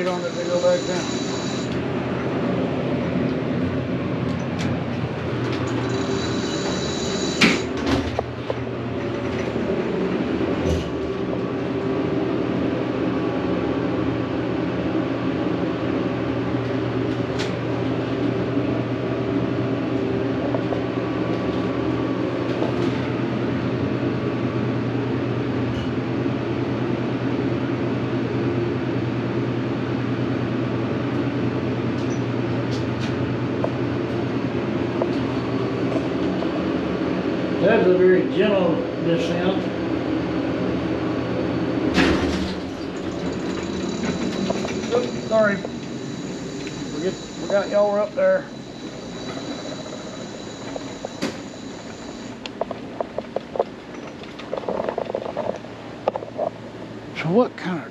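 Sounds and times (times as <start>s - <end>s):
elevator drive hum and rumble: 0.0s - 57.9s
short high beep: 5.8s - 7.6s.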